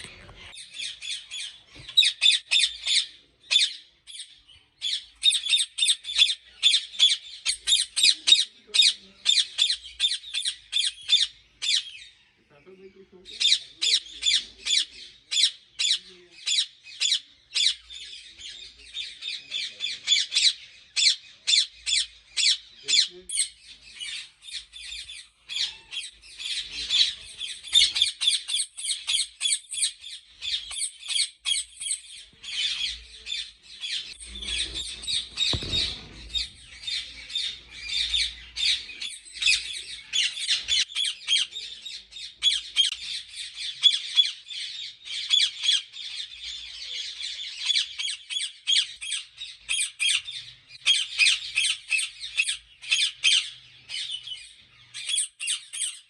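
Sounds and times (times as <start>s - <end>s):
parakeets squawking: 19.1s - 48.5s.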